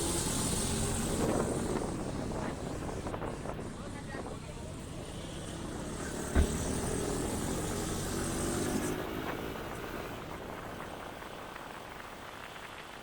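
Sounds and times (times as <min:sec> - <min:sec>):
road and traffic noise: 0:00.0 - 0:13.0
sharp low thump: 0:06.2 - 0:07.0.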